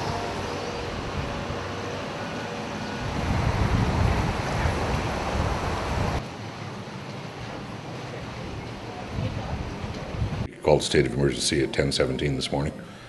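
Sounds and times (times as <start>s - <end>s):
wind buffeting the microphone: 0.0s - 1.7s, 2.8s - 6.2s, 8.4s - 10.5s
floodwater rushing: 0.0s - 10.5s.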